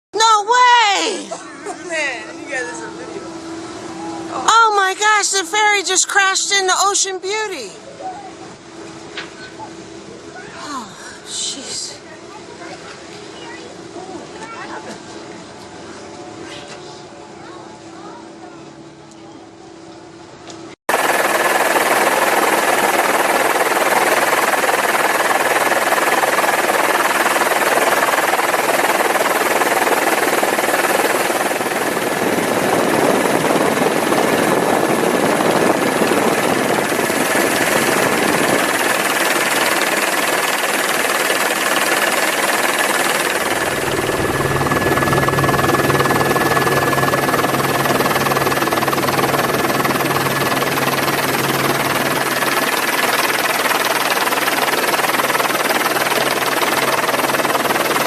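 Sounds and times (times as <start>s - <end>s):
machine drone with high whine: 20.9s - 58.0s.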